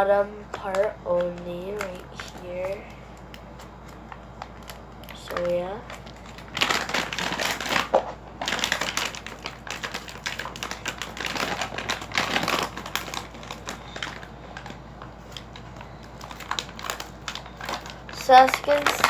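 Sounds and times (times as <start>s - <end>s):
plastic bag crinkling: 0.5s - 19.0s.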